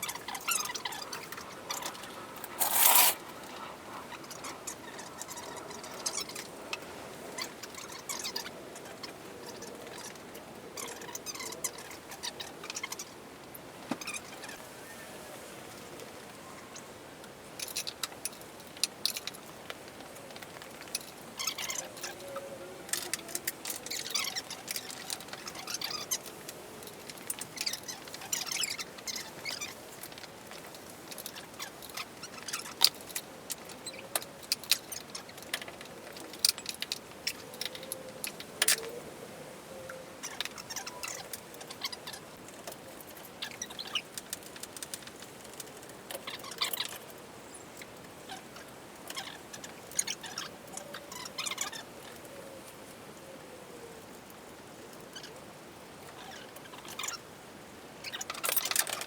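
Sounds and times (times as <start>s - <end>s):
hand tools clinking on metal: 2.4s - 3.2s.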